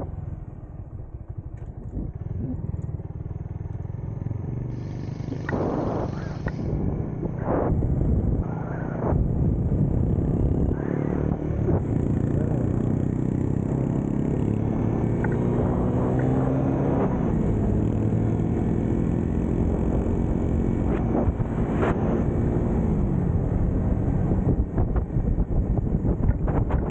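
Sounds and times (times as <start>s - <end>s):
motorcycle engine running: 0.0s - 26.9s
wind rushing: 5.2s - 12.2s, 19.4s - 26.9s.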